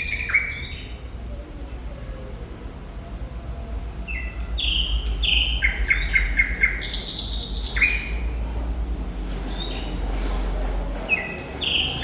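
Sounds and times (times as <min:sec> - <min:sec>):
thrush nightingale singing: 0:00.0 - 0:01.0, 0:03.5 - 0:08.2.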